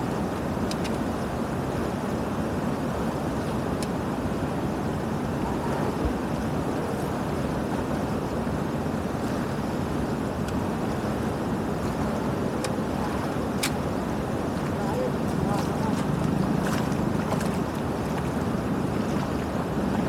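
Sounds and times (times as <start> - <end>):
floodwater rushing through channel: 0.0 - 20.0.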